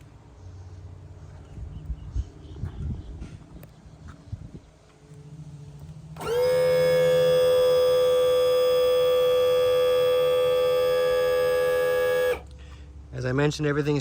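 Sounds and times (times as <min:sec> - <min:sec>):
electric trim motor whining: 0:06.2 - 0:12.5.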